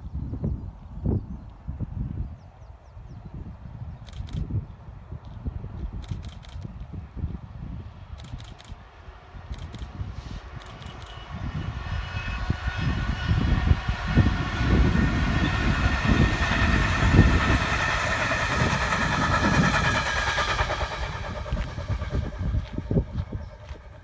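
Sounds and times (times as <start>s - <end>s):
freight train deep rumble: 1.6s - 24.0s.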